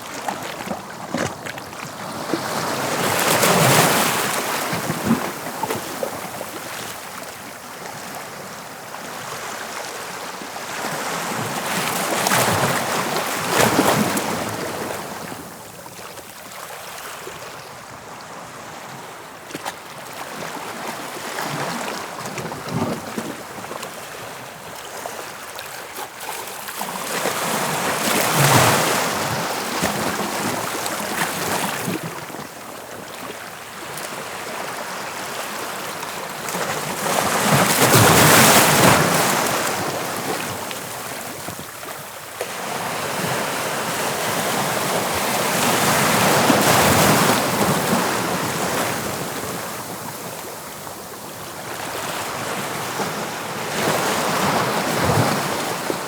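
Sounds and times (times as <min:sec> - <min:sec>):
waves breaking on shore: 0:33.1 - 0:56.0.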